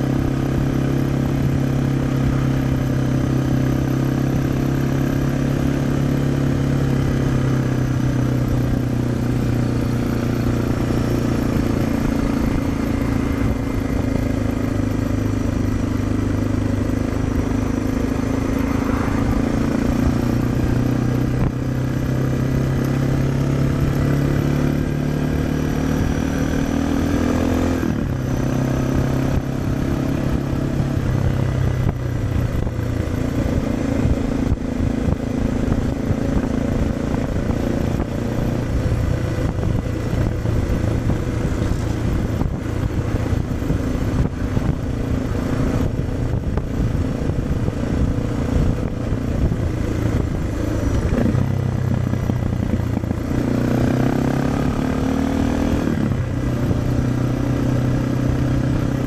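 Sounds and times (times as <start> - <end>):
motorcycle engine running: 0.0 - 59.0
wind buffeting microphone: 31.0 - 53.5.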